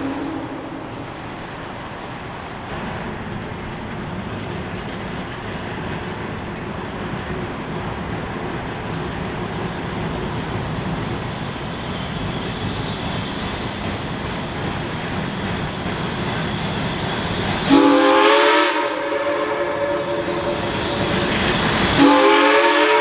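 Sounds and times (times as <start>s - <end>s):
steam locomotive chime whistle: 0.0s - 1.4s, 15.5s - 23.0s.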